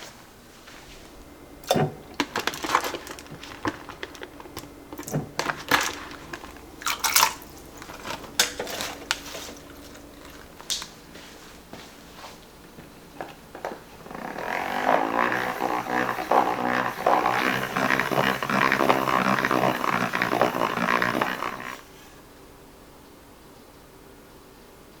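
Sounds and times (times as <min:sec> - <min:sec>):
plastic containers clicking and knocking: 0:01.6 - 0:10.9
containers scraping: 0:01.6 - 0:11.4, 0:12.8 - 0:21.9.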